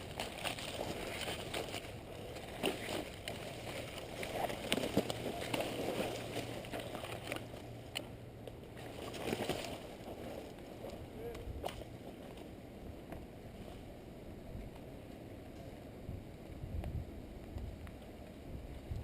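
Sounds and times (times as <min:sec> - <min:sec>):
footsteps through dry leaves: 0:00.0 - 0:07.5.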